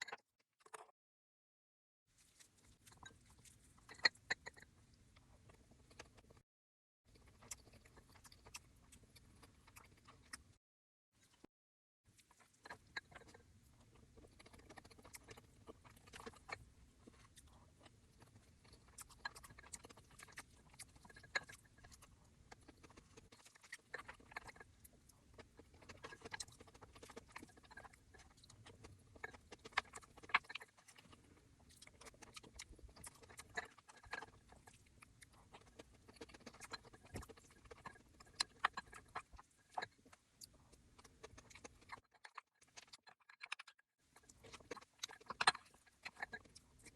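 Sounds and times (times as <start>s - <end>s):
close chewing with wet smacks: 2.2s - 6.4s, 7.1s - 10.6s, 12.1s - 46.9s.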